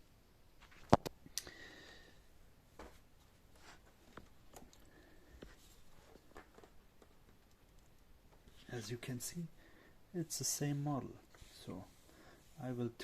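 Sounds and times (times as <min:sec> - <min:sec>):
faint clicks and taps: 0:03.6 - 0:08.8.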